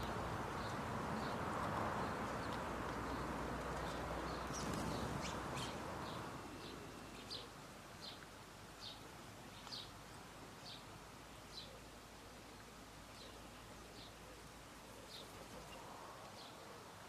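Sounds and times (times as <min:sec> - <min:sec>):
low rushing background noise: 0:00.0 - 0:17.0
small bird chirping: 0:03.8 - 0:08.2.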